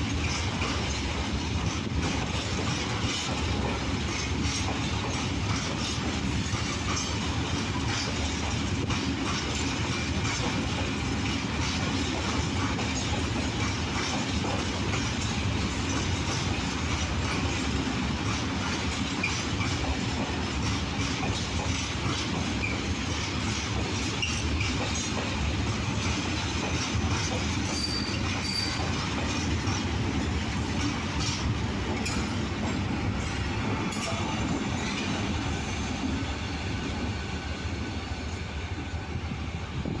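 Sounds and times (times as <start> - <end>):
freight train wagons clattering: 0.0 - 40.0
high wheel squeals: 27.6 - 29.0.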